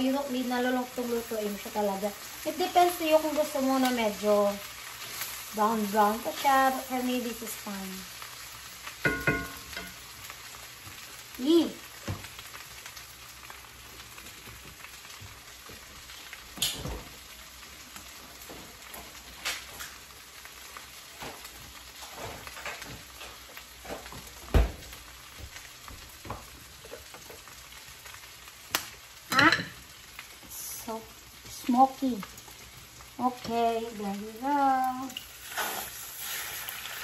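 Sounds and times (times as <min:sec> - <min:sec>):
meat sizzling in a skillet: 0:00.0 - 0:37.0
low thump: 0:24.5 - 0:24.8.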